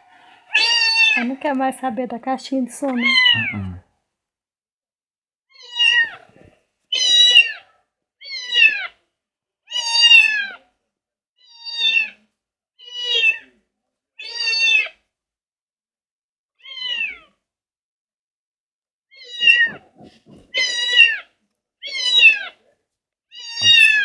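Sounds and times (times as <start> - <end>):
cat meowing: 0.0 - 1.3, 3.0 - 3.8, 5.6 - 6.2, 8.3 - 8.9, 11.5 - 12.2, 12.8 - 13.4, 16.6 - 17.3, 19.2 - 19.9, 20.5 - 21.2, 21.8 - 22.5, 23.3 - 24.0.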